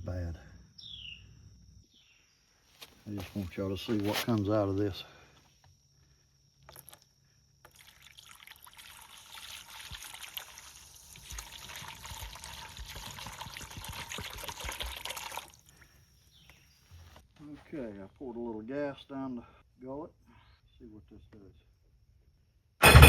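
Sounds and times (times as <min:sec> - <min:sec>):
fuel and water pouring out: 0:07.7 - 0:15.7.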